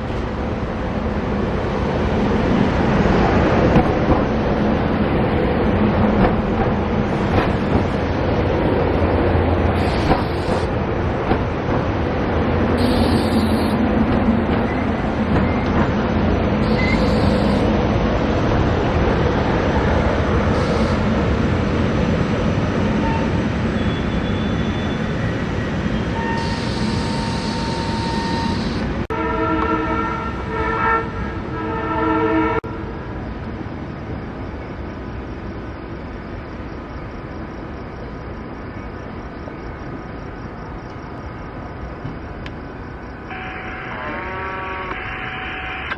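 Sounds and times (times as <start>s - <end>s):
train rumbling through station: 0.0s - 45.9s
train horn: 26.2s - 32.9s, 43.3s - 45.9s.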